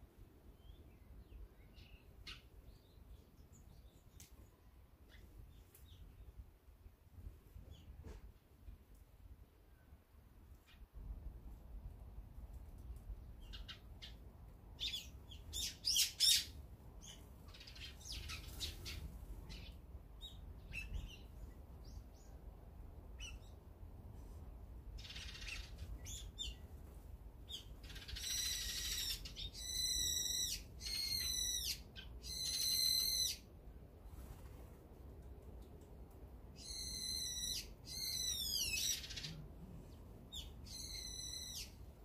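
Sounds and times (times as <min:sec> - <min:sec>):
songbirds chirping: 0:00.2 - 0:11.2, 0:12.6 - 0:34.5, 0:35.1 - 0:42.0
harsh drawn-out bird calls: 0:27.5 - 0:33.5, 0:36.6 - 0:41.9.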